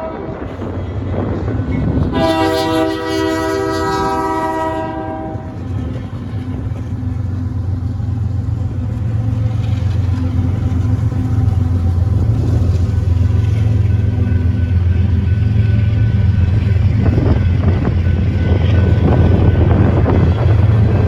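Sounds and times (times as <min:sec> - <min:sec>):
locomotive air horn chord: 0:00.0 - 0:00.7, 0:02.1 - 0:05.7
train rumbling: 0:00.0 - 0:21.0.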